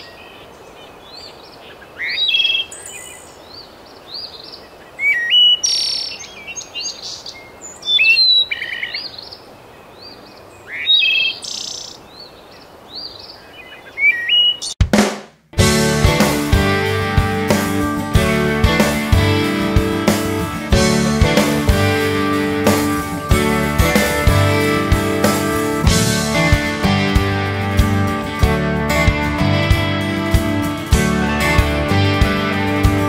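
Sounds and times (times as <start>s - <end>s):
bird chirping: 0.0s - 14.8s.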